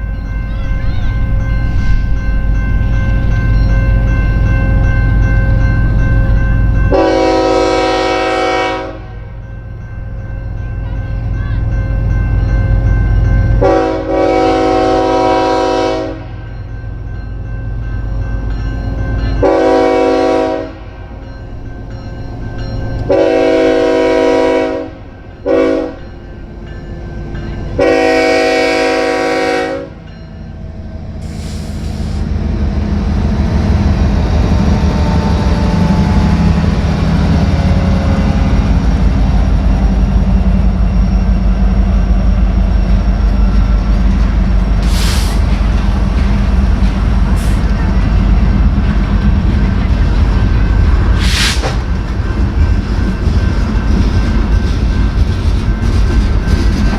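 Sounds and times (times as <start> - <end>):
locomotive engine drone: 0.0 - 56.9
locomotive air horn blasts: 6.9 - 9.2, 13.6 - 16.3, 19.4 - 20.9, 23.1 - 26.0, 27.8 - 30.0
train wheels clattering on rails: 41.8 - 56.9.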